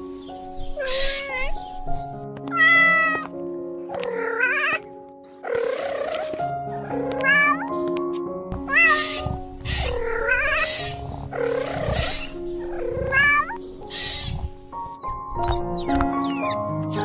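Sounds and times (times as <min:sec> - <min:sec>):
background music with held notes: 0:00.0 - 0:17.0
cat meowing: 0:00.8 - 0:01.6, 0:02.5 - 0:03.4, 0:04.0 - 0:04.8, 0:06.9 - 0:07.8, 0:08.6 - 0:14.4.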